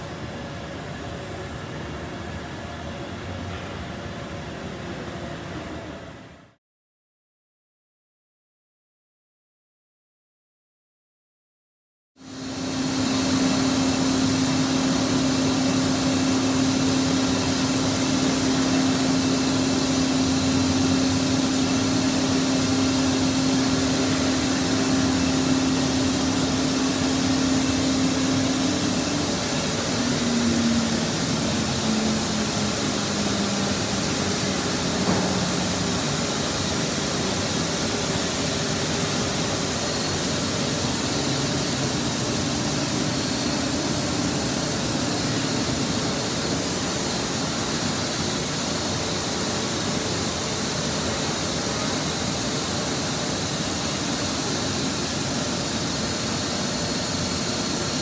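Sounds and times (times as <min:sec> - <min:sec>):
burner hissing with humming tone: 0:12.2 - 0:58.0.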